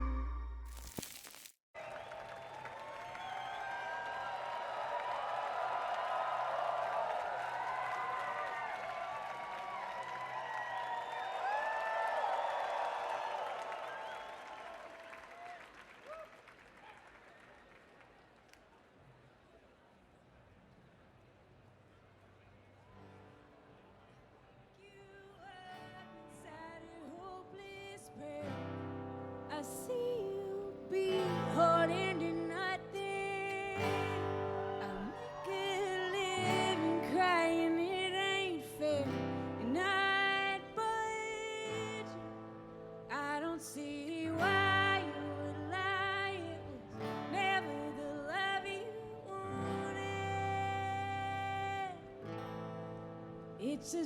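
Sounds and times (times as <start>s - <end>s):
guitar: 23.0s - 54.0s.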